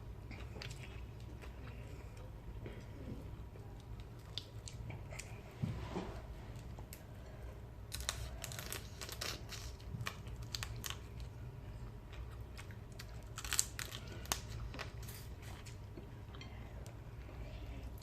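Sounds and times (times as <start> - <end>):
person chewing crisp food: 0.2 - 2.3, 7.9 - 16.4.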